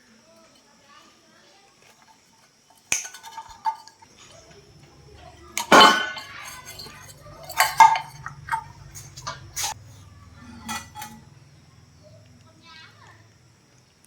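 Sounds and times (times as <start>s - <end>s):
metal tools clanking together: 2.8s - 9.8s, 10.5s - 11.2s
faint low hum: 3.0s - 14.0s.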